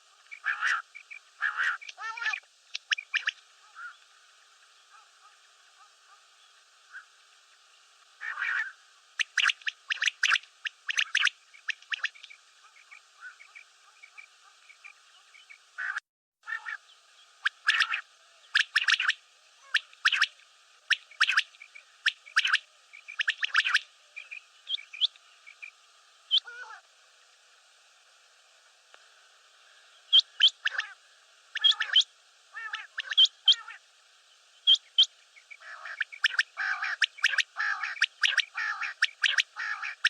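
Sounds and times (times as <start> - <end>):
quail calling: 0.3 - 4.0, 8.2 - 14.8, 15.8 - 20.3, 20.9 - 25.7, 26.3 - 26.8, 30.1 - 33.8, 34.7 - 40.0.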